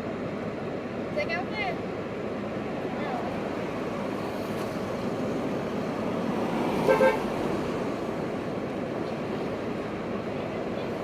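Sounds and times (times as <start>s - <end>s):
street traffic: 0.0s - 11.0s
car horn toots: 6.9s - 7.2s.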